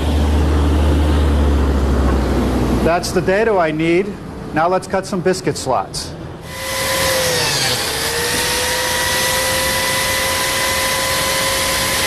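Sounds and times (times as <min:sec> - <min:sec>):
biscuit joiner whining: 0:06.4 - 0:12.0.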